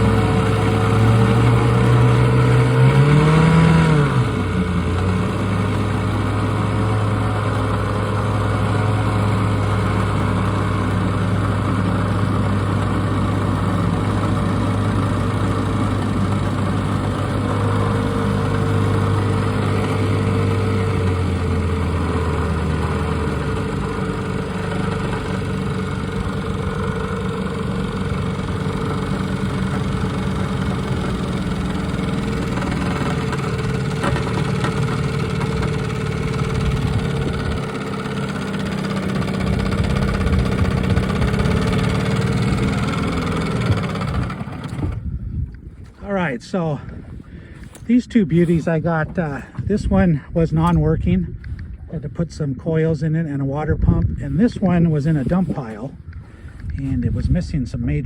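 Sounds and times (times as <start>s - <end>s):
two-stroke outboard motors running: 0.0s - 58.0s.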